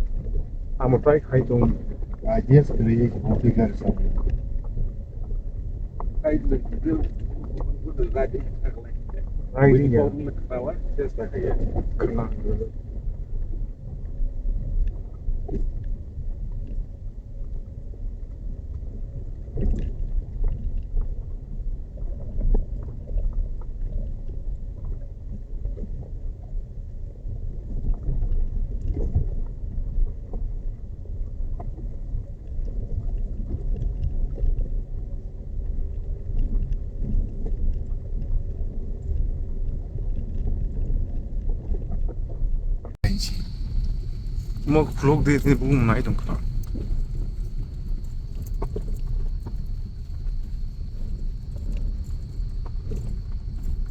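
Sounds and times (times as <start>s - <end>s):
faint engine tone: 43.0s - 53.9s
vehicle rumbling on rough track: 43.0s - 53.9s.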